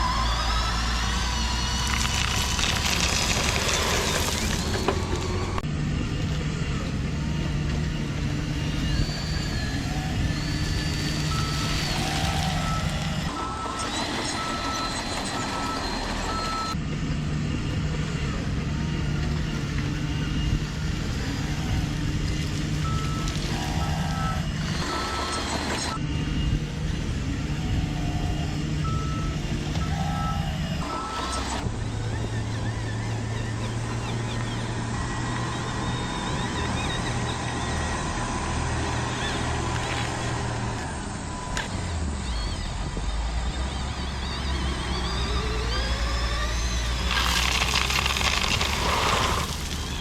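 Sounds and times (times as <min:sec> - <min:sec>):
toy truck engine drone: 0:00.0 - 0:50.0
reversing beeps: 0:08.8 - 0:16.8, 0:22.8 - 0:26.0, 0:28.0 - 0:50.0.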